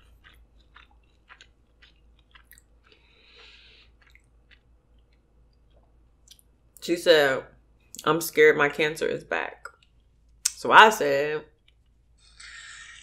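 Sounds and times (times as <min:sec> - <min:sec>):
faint chewing mouth clicks: 0:00.0 - 0:06.4.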